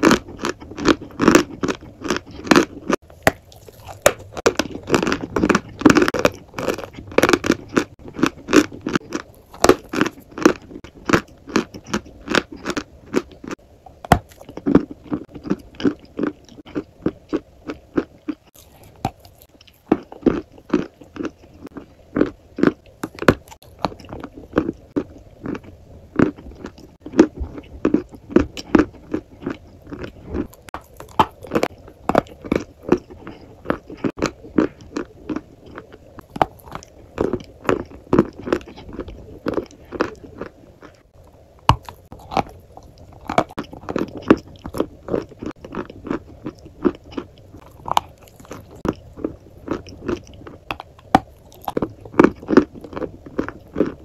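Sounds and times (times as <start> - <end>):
crisp crunching bites: 0.0 - 41.0, 41.6 - 54.0.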